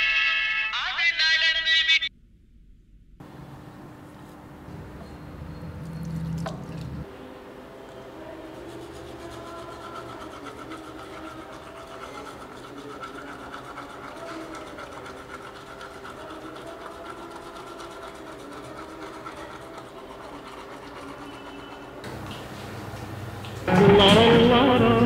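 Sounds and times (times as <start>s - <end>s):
toothbrush scrubbing teeth: 8.2s - 23.6s.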